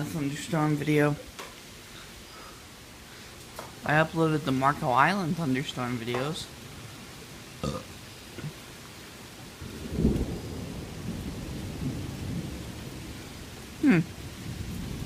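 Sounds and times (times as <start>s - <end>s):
steady rain hiss: 0.0s - 15.0s
thunder rumbling: 9.6s - 15.0s.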